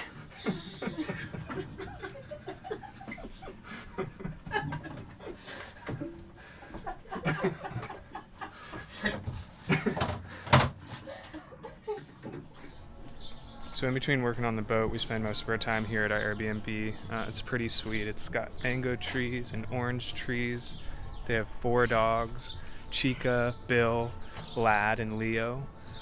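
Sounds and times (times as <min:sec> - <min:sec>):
people laughing: 0:00.0 - 0:12.8
low voices: 0:00.0 - 0:12.9, 0:13.6 - 0:25.8
knocks and clatter: 0:09.0 - 0:11.0.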